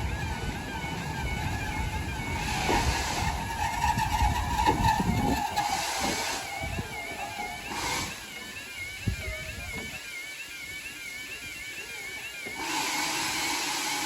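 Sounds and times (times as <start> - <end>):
rushing noise: 0.0 - 8.4
level crossing alarms warbling: 0.0 - 14.0.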